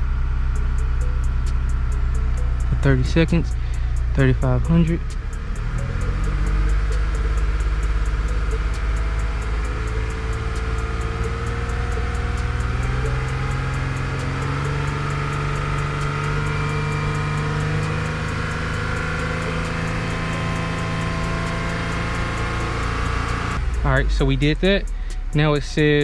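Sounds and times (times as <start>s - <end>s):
car engine at high idle: 0.0s - 26.0s.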